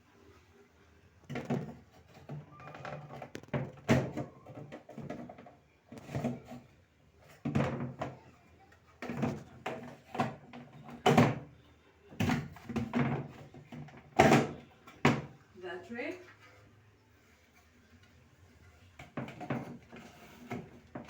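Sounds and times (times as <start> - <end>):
glass shelves knocking and clunking: 1.3 - 6.6, 7.2 - 8.2, 12.2 - 15.4, 19.0 - 21.0.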